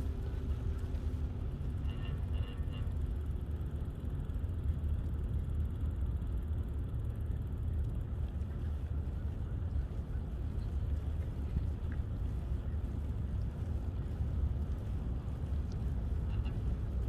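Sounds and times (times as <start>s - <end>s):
wind buffeting microphone: 7.4s - 17.0s.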